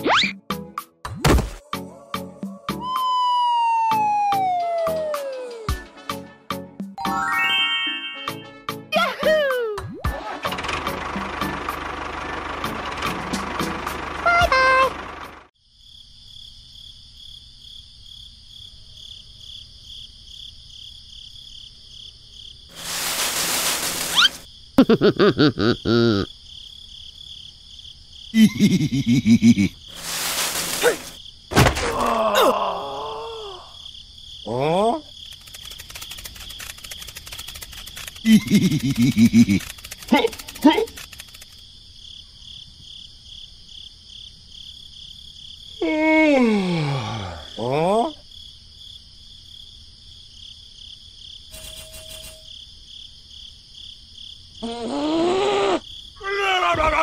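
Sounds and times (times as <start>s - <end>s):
cartoon character voice gliding: 14.2s - 15.0s
cartoon voice chatter: 14.2s - 15.0s, 38.2s - 41.0s
insect chirring: 15.6s - 31.5s, 33.3s - 45.8s, 48.2s - 54.7s
short hiss: 22.7s - 24.5s, 29.9s - 31.2s
buzzy cartoon sound effect: 22.8s - 24.4s
thump: 31.5s - 32.0s
falling vocal cry: 31.8s - 33.8s, 54.6s - 57.0s.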